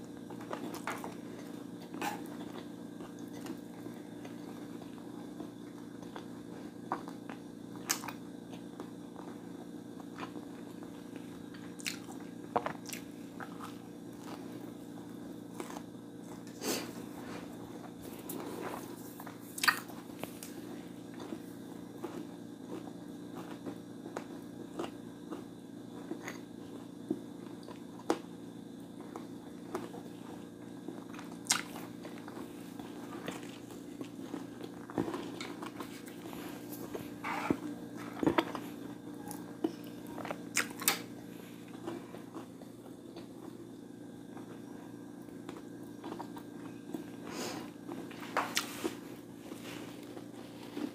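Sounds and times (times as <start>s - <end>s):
chewing and crunching food: 0.0s - 50.9s
steady low hum: 0.0s - 50.9s
crunchy bite: 18.2s - 20.6s, 31.1s - 31.9s.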